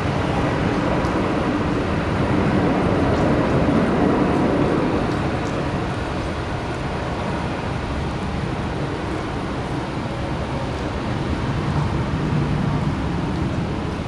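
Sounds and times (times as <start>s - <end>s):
jet engines roaring: 0.0s - 7.7s.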